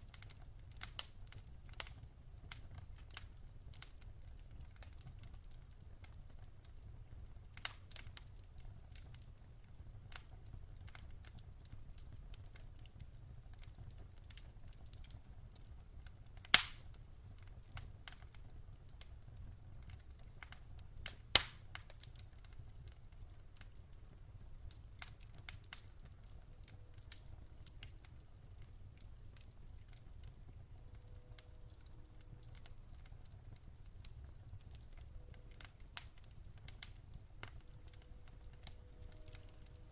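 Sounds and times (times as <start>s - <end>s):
campfire crackling: 0.0s - 39.9s
loud sharp fire pops: 16.5s - 16.9s, 21.3s - 21.7s.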